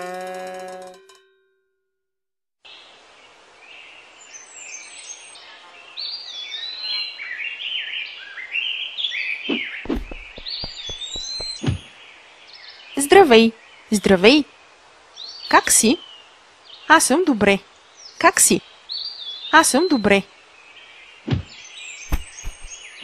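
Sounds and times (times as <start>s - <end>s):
steady outdoor hiss: 2.6s - 23.0s
birds chirping and twittering: 2.7s - 23.0s
low thumps: 9.9s - 11.9s, 21.3s - 21.5s, 22.1s - 22.8s.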